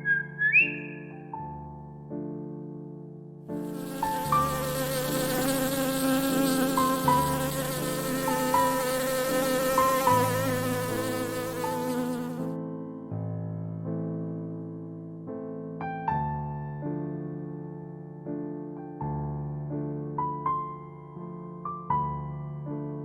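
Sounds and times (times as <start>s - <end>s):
soft piano music: 0.0s - 23.0s
insect buzzing: 3.5s - 12.6s.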